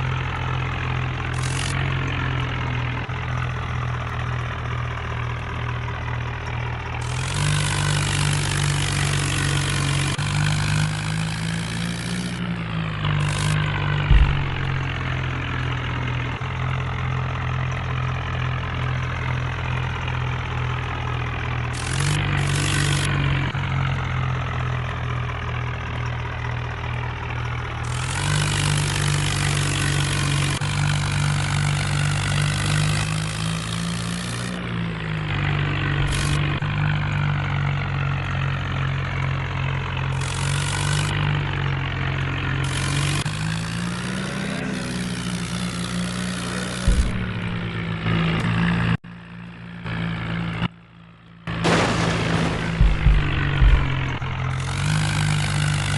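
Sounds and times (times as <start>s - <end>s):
diesel tractor engine idling: 0.0s - 55.9s
sharp thump: 14.0s - 15.0s, 46.9s - 47.9s, 51.6s - 54.6s.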